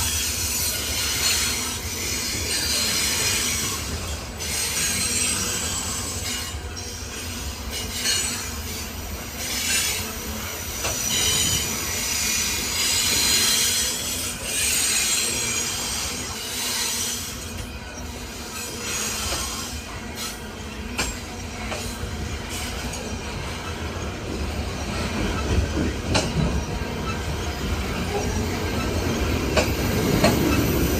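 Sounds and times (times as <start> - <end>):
steel wheel squeal: 0.0 - 30.9
train cars rumbling past: 0.0 - 30.9.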